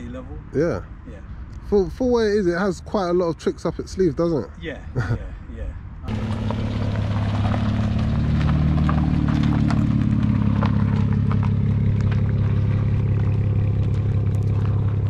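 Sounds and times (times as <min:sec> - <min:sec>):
car engine running at low revs: 0:06.0 - 0:15.0
tyres crunching on gravel: 0:06.1 - 0:15.0.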